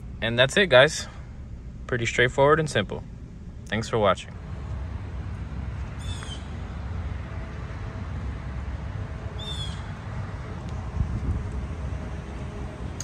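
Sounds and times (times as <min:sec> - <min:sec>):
low outdoor rumble: 0:00.0 - 0:13.0
bird call descending notes: 0:05.9 - 0:06.8, 0:09.3 - 0:10.0.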